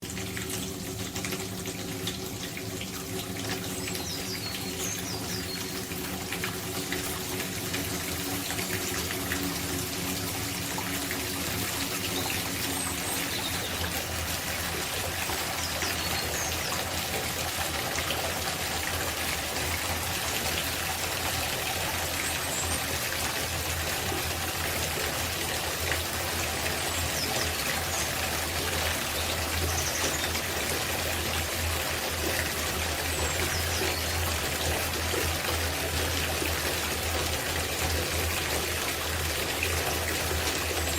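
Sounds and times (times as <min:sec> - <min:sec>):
tap water splashing into tub: 0:00.0 - 0:40.9
birds chirping: 0:03.4 - 0:06.9, 0:10.5 - 0:18.8, 0:26.7 - 0:31.3.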